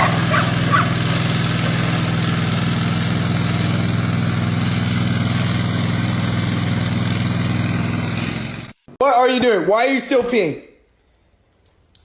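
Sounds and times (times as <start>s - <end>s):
loud mechanical hum: 0.0s - 8.8s.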